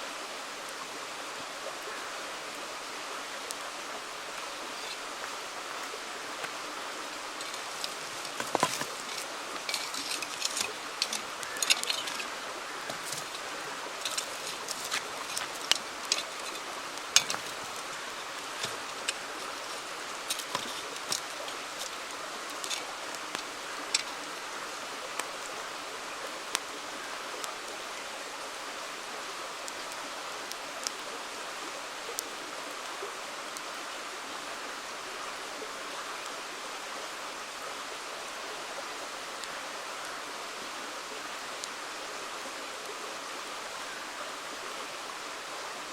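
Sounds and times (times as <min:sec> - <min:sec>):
river flowing: 0:00.0 - 0:45.9
campfire crackling and popping: 0:03.4 - 0:26.7, 0:29.6 - 0:31.0.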